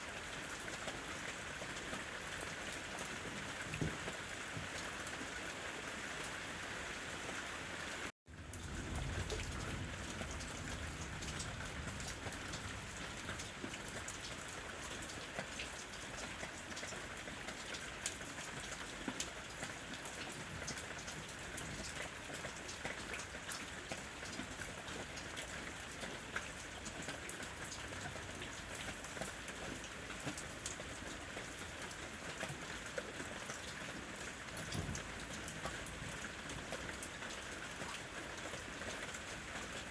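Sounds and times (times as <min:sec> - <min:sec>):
rain falling on a roof: 0:00.0 - 0:39.9
raindrop taps: 0:08.4 - 0:38.6.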